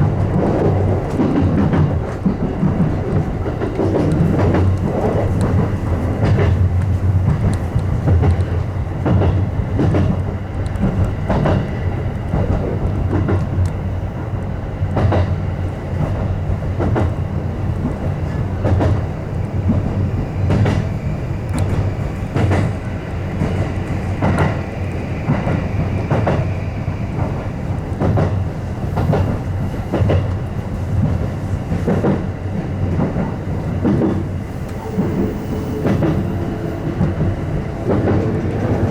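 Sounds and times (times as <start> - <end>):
electric train rumbling: 0.0 - 38.9
wheels clacking over rail joints: 14.4 - 38.9.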